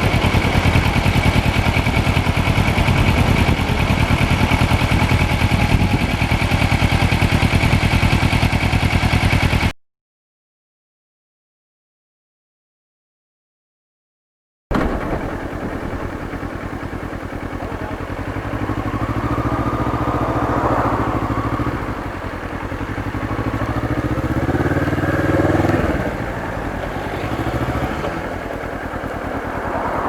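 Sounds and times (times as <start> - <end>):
motorcycle engine running: 0.0 - 9.7, 14.7 - 30.0.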